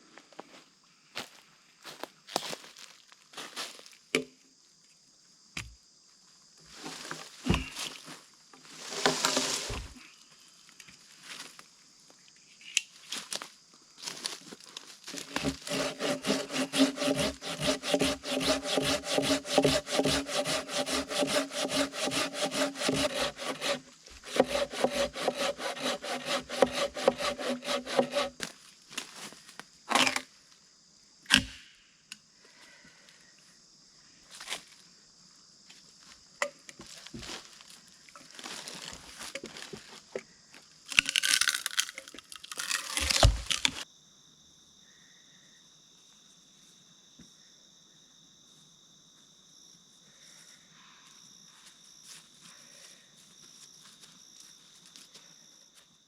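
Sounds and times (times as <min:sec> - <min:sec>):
hand saw cutting wood: 0:15.1 - 0:28.4, 0:42.6 - 0:43.8.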